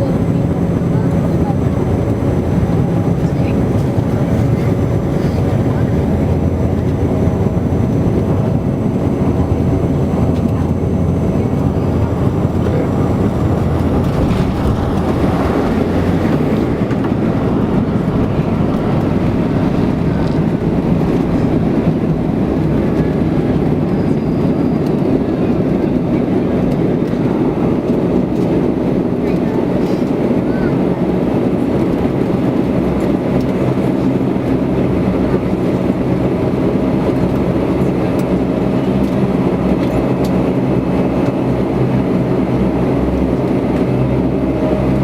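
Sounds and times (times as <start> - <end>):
airflow noise: 0.0 - 26.2
airliner engines and propellers droning: 0.0 - 45.0.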